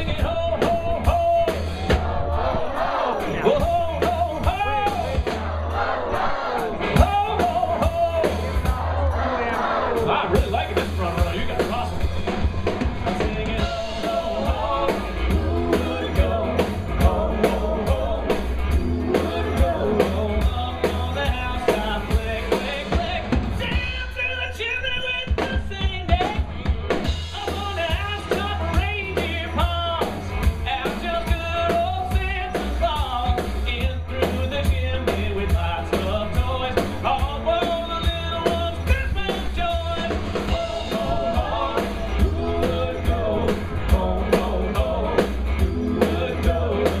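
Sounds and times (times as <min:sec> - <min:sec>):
bass: 0:00.0 - 0:47.0
drum kit: 0:00.0 - 0:47.0
live rock band playing: 0:00.0 - 0:47.0
person singing: 0:13.1 - 0:24.6, 0:30.8 - 0:47.0.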